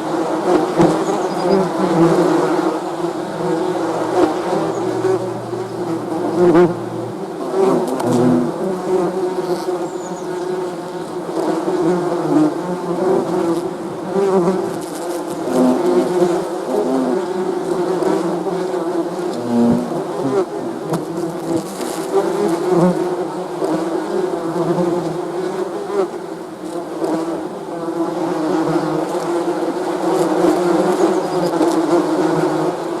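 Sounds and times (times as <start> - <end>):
bees buzzing: 0.0 - 13.4.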